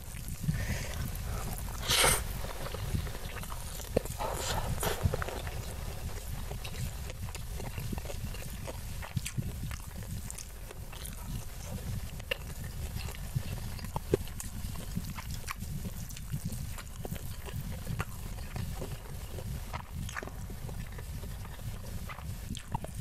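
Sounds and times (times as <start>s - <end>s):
close chewing food: 0.0s - 23.0s
wet mouth clicks and lip smacks: 0.2s - 11.5s.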